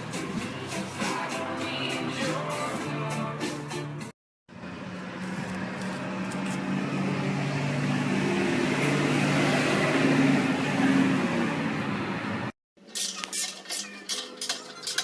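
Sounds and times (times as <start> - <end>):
car engine revving: 4.6 - 12.4.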